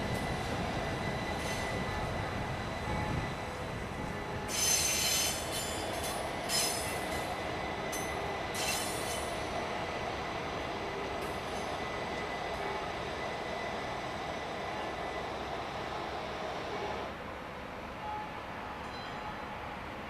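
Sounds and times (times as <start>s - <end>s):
train rumble on rails: 0.0s - 20.0s
wheel flange squeal: 4.5s - 5.8s.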